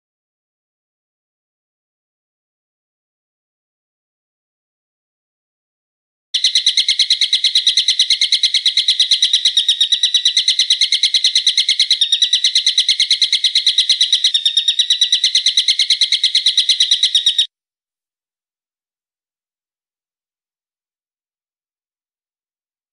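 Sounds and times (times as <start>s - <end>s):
songbird calling high notes: 6.4s - 17.5s.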